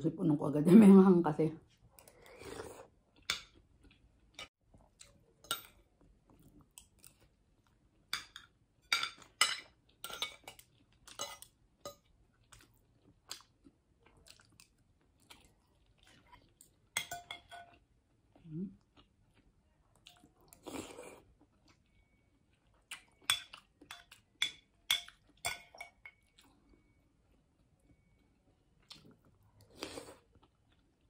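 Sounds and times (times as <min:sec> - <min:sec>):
chewing with wet mouth smacks: 0:12.3 - 0:16.9, 0:28.8 - 0:31.0.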